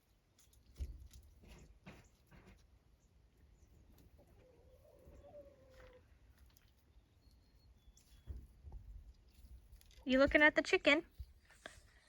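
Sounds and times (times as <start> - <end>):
faint drawn-out animal call: 4.2 - 6.2.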